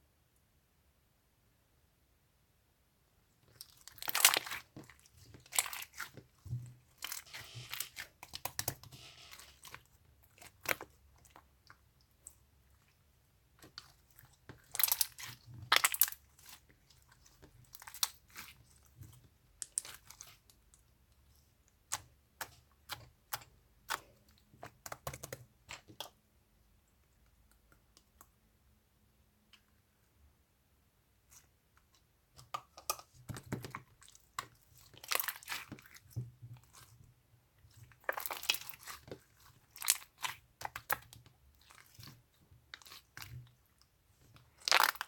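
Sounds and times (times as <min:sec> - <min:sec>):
crunching and crackling: 0:03.5 - 0:13.0, 0:13.6 - 0:20.6, 0:32.7 - 0:36.9, 0:37.6 - 0:45.0.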